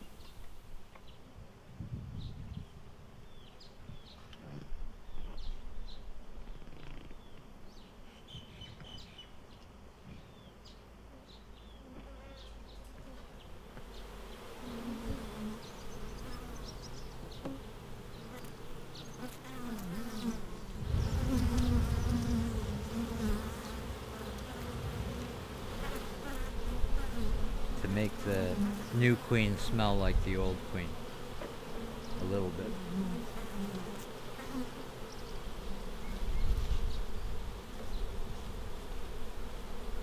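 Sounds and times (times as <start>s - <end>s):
honeybees buzzing: 11.6s - 40.0s.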